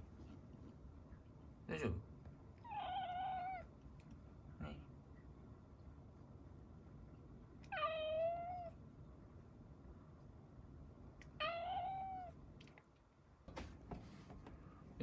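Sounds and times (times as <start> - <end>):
cat meowing: 2.6 - 3.7, 7.6 - 8.8, 11.4 - 12.3.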